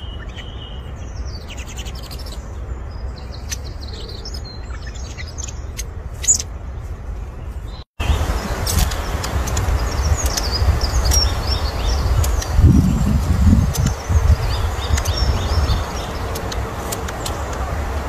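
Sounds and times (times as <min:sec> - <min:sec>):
birds chirping high: 0:00.0 - 0:18.0
low rumble: 0:08.0 - 0:16.1.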